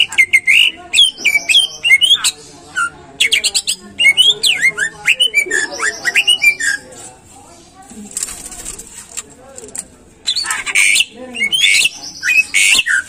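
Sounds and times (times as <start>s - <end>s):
bird singing chirps and whistles: 10.3s - 13.0s.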